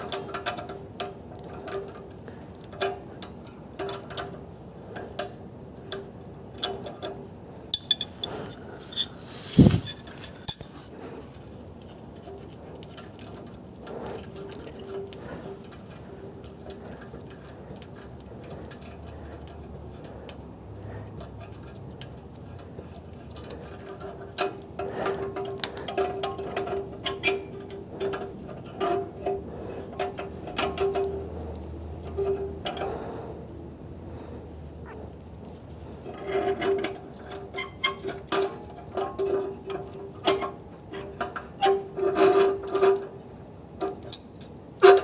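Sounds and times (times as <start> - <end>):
metal clinks and thump: 7.8 - 10.8, 43.8 - 45.0.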